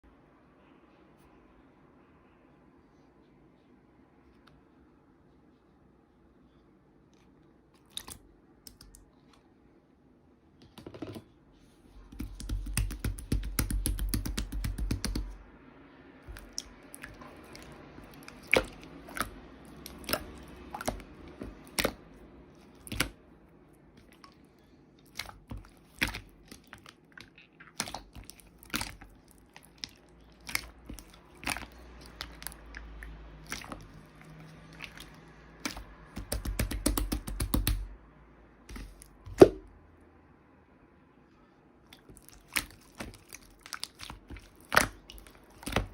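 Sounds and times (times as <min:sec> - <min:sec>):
slime squished by hand: 0:07.8 - 0:09.0, 0:12.0 - 0:15.4, 0:16.2 - 0:23.3, 0:23.9 - 0:37.9, 0:38.7 - 0:39.7, 0:41.8 - 0:45.9.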